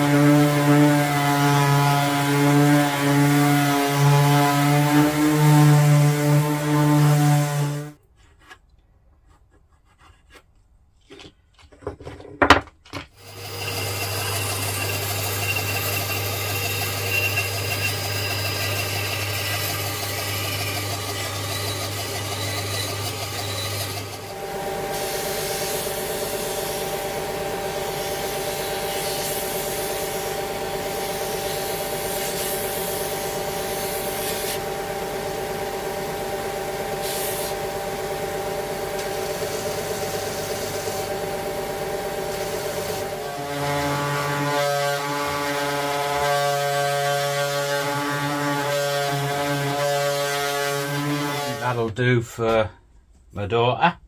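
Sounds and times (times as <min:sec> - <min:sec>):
power tool running on wood: 0:00.0 - 0:08.0, 0:13.2 - 0:51.9
motorised tool running: 0:13.2 - 0:33.1.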